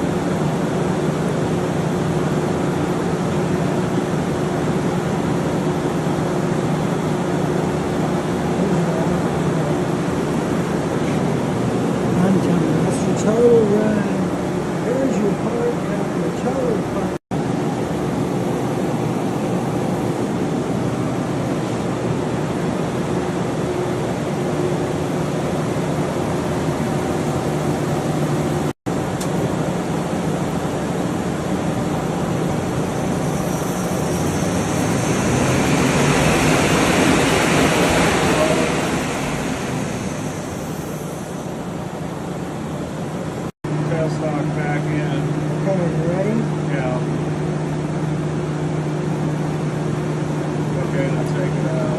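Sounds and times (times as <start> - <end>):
lathe humming: 23.4 - 43.5.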